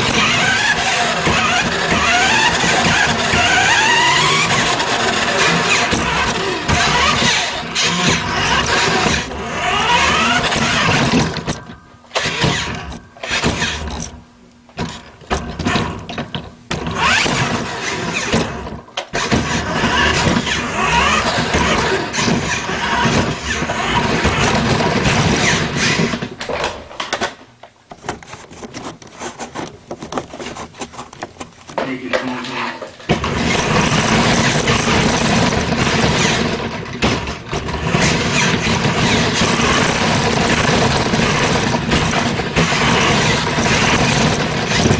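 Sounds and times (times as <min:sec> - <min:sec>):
toy truck motor revving: 0:00.0 - 0:14.1, 0:16.8 - 0:26.3, 0:33.2 - 0:36.8, 0:37.5 - 0:44.9.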